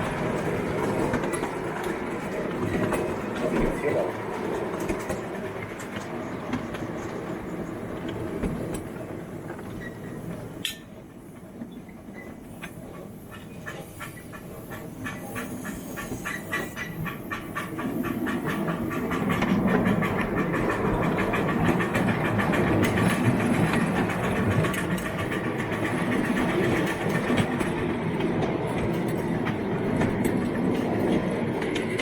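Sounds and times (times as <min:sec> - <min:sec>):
model train wheels clicking on rails: 0:12.5 - 0:32.0.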